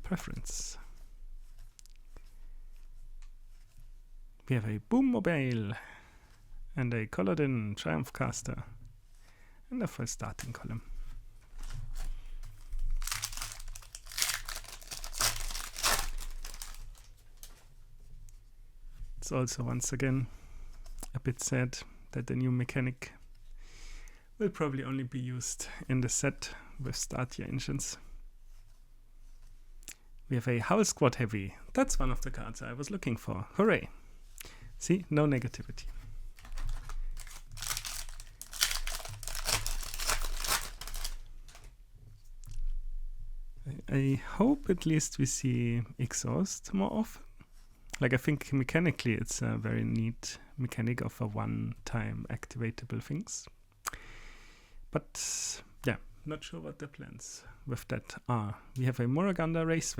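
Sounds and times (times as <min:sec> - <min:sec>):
plastic wrapper crinkling and tearing: 0:11.6 - 0:17.6, 0:36.4 - 0:41.7.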